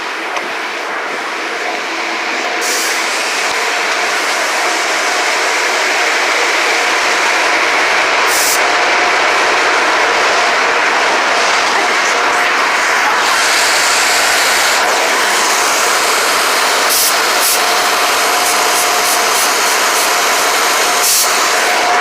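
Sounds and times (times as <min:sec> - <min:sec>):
car wash equipment rushing: 0:00.0 - 0:22.0.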